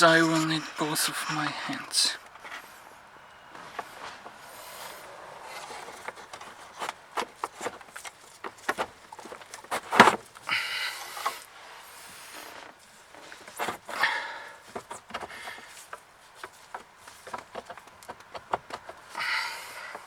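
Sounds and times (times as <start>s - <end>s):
hose connection clicks and scrapes: 5.5s - 11.5s, 12.1s - 19.3s.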